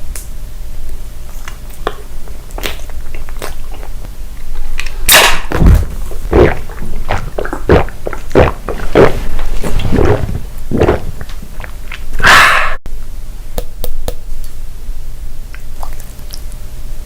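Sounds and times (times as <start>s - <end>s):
close chewing of food: 1.3s - 12.2s.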